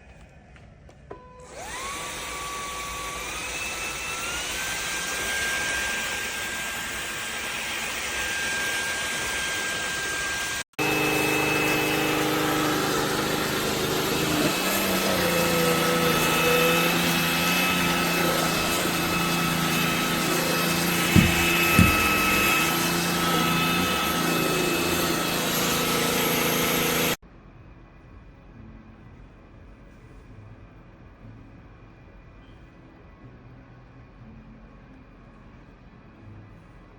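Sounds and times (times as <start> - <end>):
vacuum cleaner motor whine: 1.1 - 27.2.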